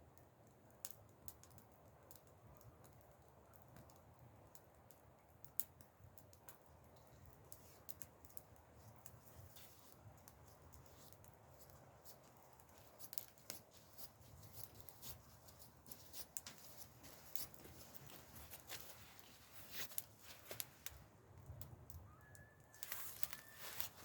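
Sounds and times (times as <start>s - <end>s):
faint clicks and snaps: 0.1s - 22.0s
faint high chirp: 22.0s - 24.0s.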